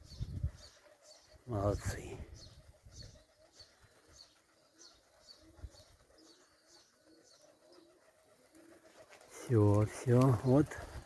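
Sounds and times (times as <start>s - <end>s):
small bird chirping: 0.0s - 8.8s
pigeons cooing: 0.0s - 11.0s.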